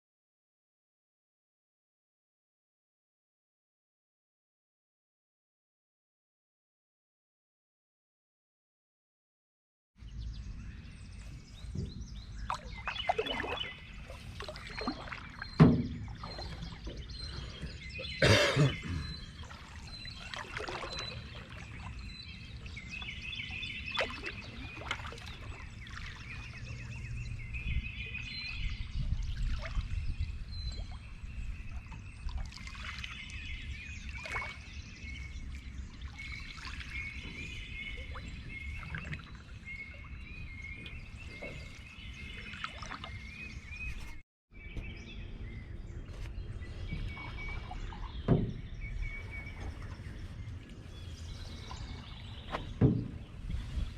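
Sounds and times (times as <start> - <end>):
birds singing: 10.0 - 53.9
paddle splashing water: 10.8 - 45.1, 46.0 - 53.9
paddle knocks: 14.4 - 17.8, 46.9 - 50.1, 51.8 - 53.8.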